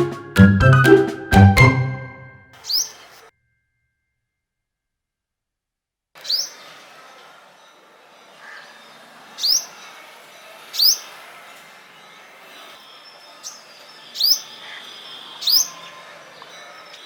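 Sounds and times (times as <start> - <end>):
small bird chirping: 2.6 - 3.2, 6.2 - 6.6, 12.8 - 17.0.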